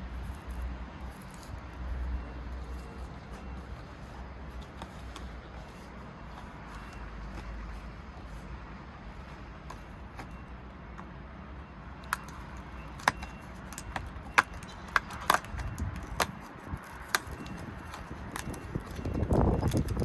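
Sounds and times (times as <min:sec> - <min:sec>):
crinkly packaging handled: 0:00.1 - 0:08.5, 0:09.1 - 0:10.6, 0:12.0 - 0:20.0
plastic pieces clicking: 0:12.0 - 0:20.0.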